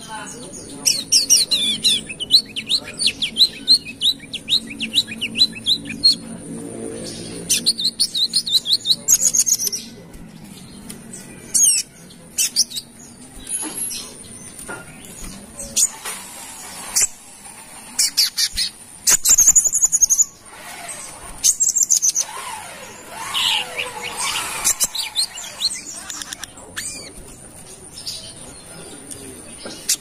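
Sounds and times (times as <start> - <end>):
sunbird chirping: 0.0 - 6.4.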